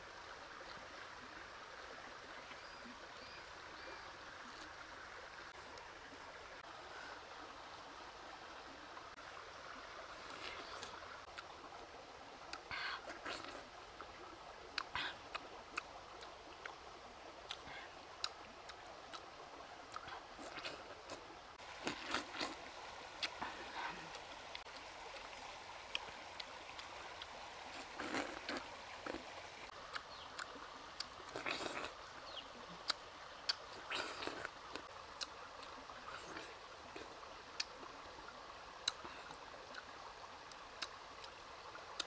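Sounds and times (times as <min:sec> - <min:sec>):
wet chewing and smacking: 0:21.8 - 0:22.6, 0:29.9 - 0:32.0
sharp mouth clicks: 0:32.9 - 0:34.5.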